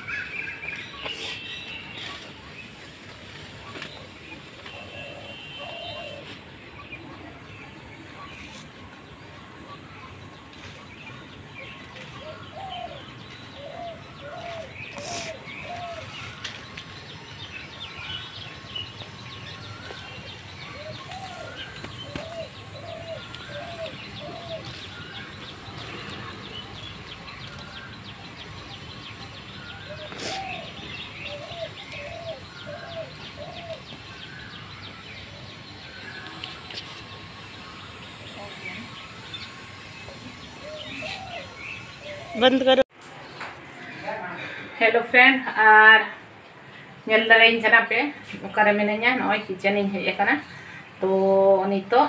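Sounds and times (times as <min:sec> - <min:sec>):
birds chirping: 0:00.0 - 0:52.0
bird hooting: 0:20.6 - 0:25.6, 0:29.7 - 0:34.4.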